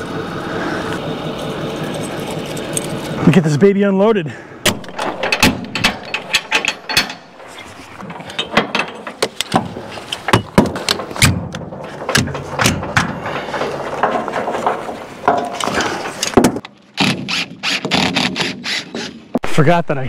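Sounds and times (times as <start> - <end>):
fittings clattering: 4.6 - 16.6
clicks knocks and rattles: 4.7 - 16.7.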